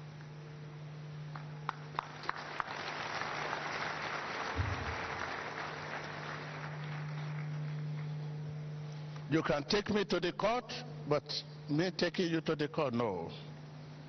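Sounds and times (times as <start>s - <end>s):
congregation applauding: 1.3s - 8.2s.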